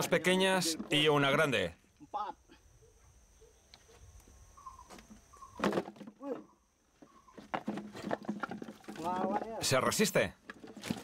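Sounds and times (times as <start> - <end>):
bird calls: 2.6 - 7.7.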